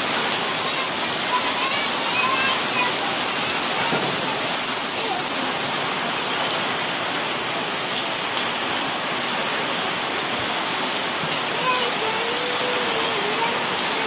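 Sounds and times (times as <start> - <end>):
heavy rain on puddled ground: 0.0 - 14.0.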